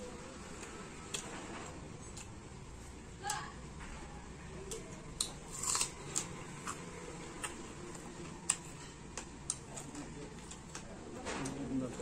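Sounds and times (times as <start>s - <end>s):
faint steady hum: 0.0s - 11.1s
chewing crunches: 4.7s - 11.6s.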